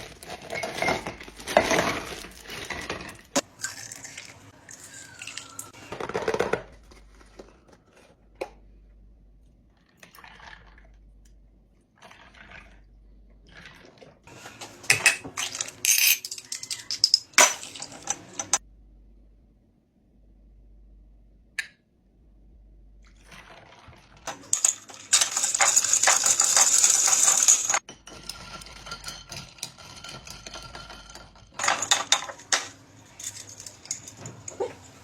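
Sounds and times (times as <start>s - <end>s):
glassware and utensils clinking: 14.8s - 18.6s, 24.3s - 35.0s.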